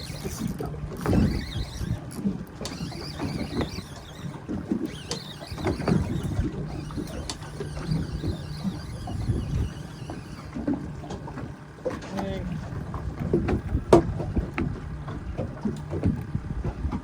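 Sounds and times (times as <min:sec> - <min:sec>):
low steady hum: 0:00.0 - 0:17.0
water sloshing against hull: 0:00.0 - 0:17.0
wind buffeting microphone: 0:05.7 - 0:11.4, 0:12.6 - 0:17.0.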